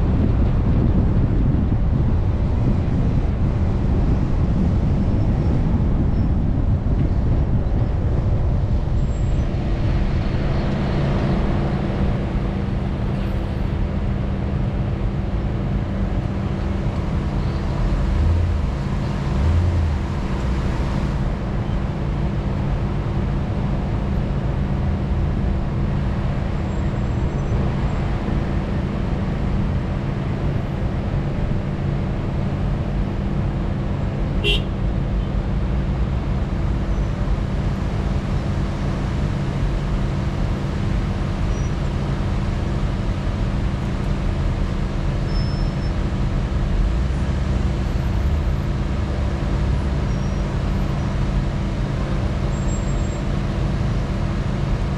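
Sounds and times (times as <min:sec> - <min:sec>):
vehicle engine running: 0:00.0 - 0:54.9.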